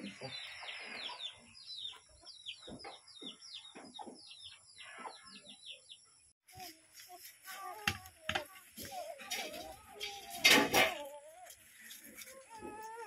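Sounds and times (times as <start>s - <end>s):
bird chirping: 0.0s - 6.4s.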